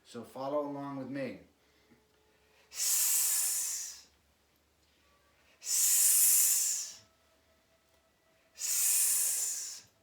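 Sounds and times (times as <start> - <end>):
person breathing out hissing: 2.7 - 4.1, 5.6 - 7.1, 8.6 - 10.0.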